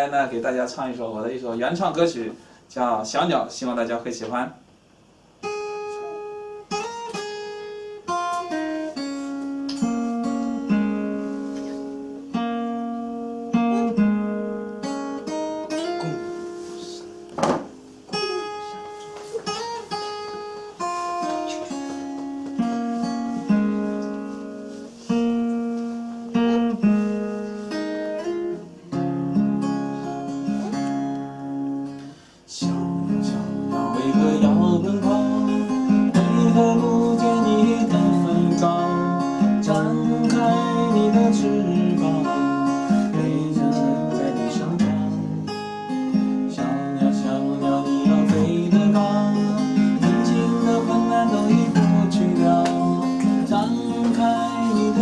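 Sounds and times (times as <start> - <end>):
acoustic guitar chords: 4.7 - 55.0
sharp knock: 17.4 - 17.8.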